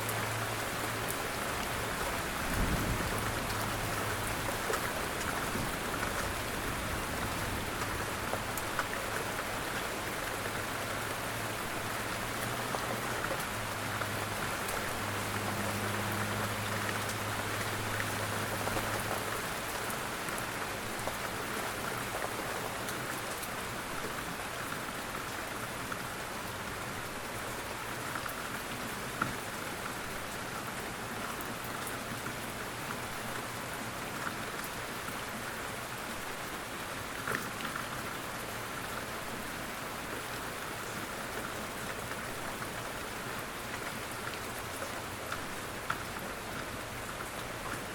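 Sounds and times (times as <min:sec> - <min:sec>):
steady rain hiss: 0:00.0 - 0:47.9.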